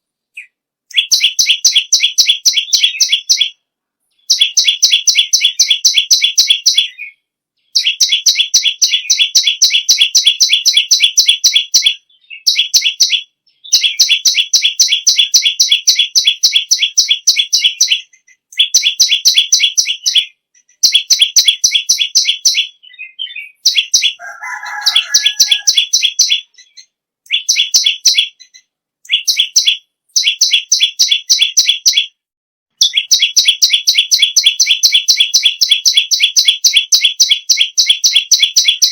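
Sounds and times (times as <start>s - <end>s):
bird singing rattling trill: 0.4s - 32.2s, 32.8s - 38.9s
low bird call: 22.5s - 27.7s.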